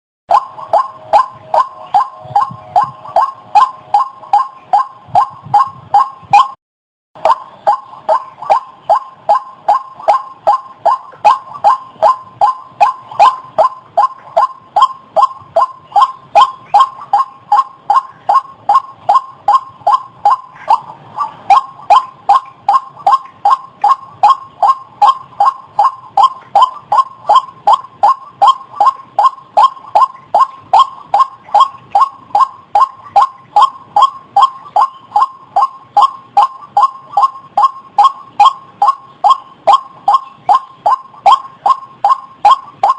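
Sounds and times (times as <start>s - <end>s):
bird repeated croaking call: 0.3s - 6.6s, 7.2s - 42.9s.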